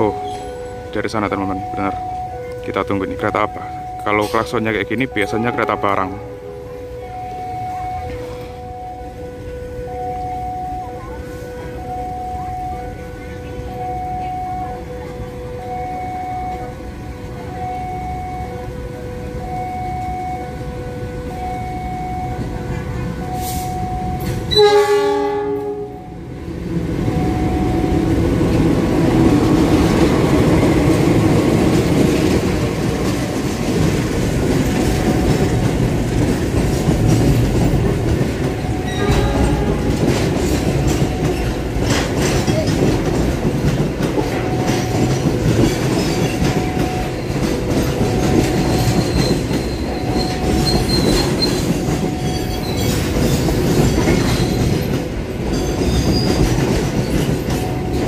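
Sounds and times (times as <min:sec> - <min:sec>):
locomotive horn blaring: 0:00.0 - 0:26.4, 0:38.4 - 0:41.8
freight train wheels rumbling: 0:00.0 - 0:58.0
faint high wheel squeal: 0:48.6 - 0:54.7.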